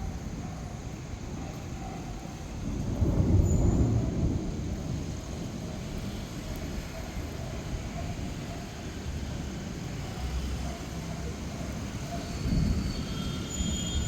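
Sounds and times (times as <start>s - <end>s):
distant thunder rumbling: 2.4s - 8.4s.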